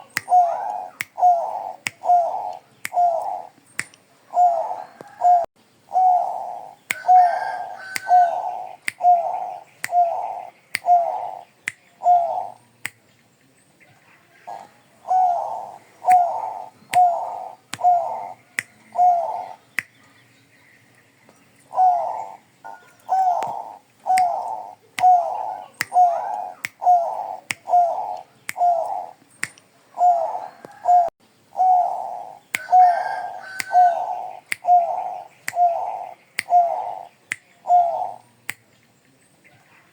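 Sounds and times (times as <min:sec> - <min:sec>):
dove cooing: 0:00.0 - 0:03.6, 0:04.2 - 0:12.6, 0:14.3 - 0:20.2, 0:21.7 - 0:29.2, 0:29.9 - 0:38.2
sharp thin clicks: 0:03.6 - 0:04.1, 0:08.0 - 0:09.1, 0:11.6 - 0:11.9, 0:23.0 - 0:25.2, 0:27.5 - 0:29.7, 0:34.4 - 0:34.8, 0:37.3 - 0:37.5.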